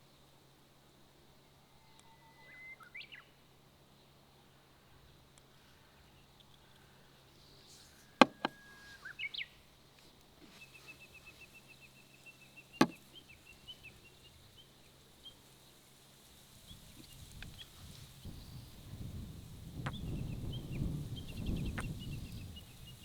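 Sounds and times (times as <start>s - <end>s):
birds chirping and trilling: 1.8s - 3.4s, 5.9s - 9.7s, 19.8s - 23.0s.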